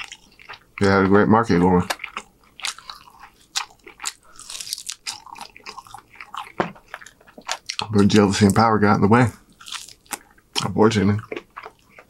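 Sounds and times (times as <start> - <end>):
crunching fried chicken: 0.0 - 8.6, 9.4 - 12.0.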